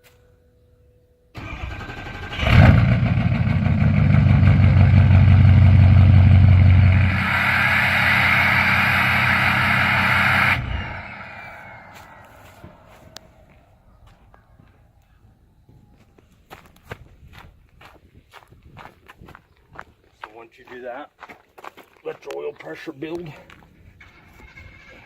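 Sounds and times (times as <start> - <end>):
diesel engine cranking: 1.4 - 13.2
diesel engine running loudly: 1.4 - 13.6.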